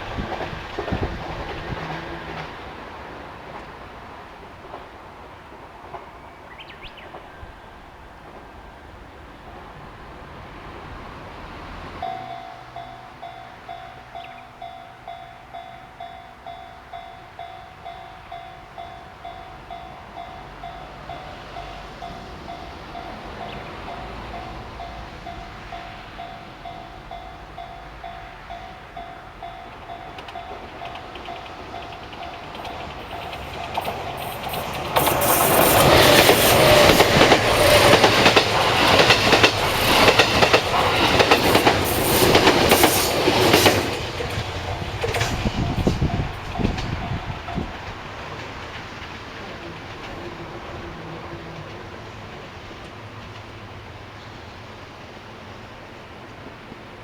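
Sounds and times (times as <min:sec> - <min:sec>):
approaching train: 0:00.0 - 0:57.0
level crossing warning bell: 0:12.0 - 0:43.4.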